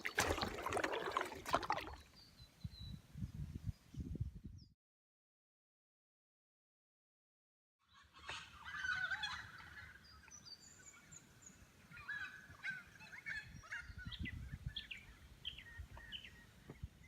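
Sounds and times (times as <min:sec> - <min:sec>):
birds chirping and singing: 0:08.2 - 0:17.0.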